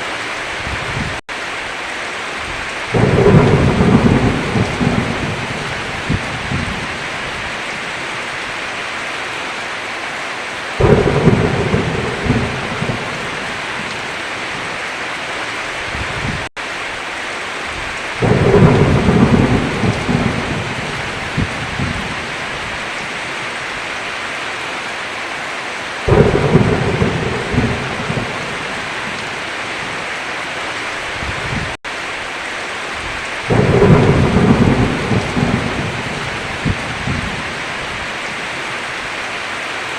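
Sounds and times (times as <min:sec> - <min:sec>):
heavy rain: 0:00.0 - 0:39.9
thunder rumbling: 0:02.5 - 0:08.2, 0:10.8 - 0:14.8, 0:17.7 - 0:23.4, 0:26.1 - 0:30.1, 0:33.0 - 0:38.7.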